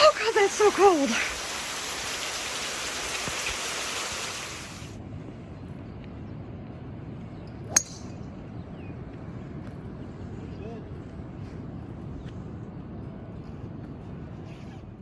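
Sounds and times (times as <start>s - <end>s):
heavy rain pouring: 0.0s - 5.0s.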